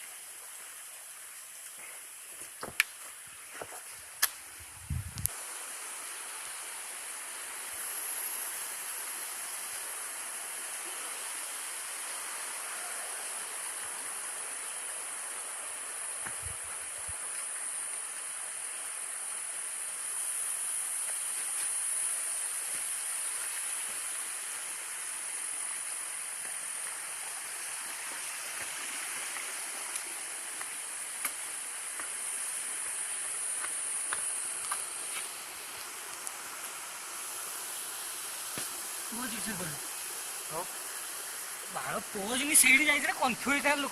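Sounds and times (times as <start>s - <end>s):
waterfall rushing: 38.8s - 43.9s.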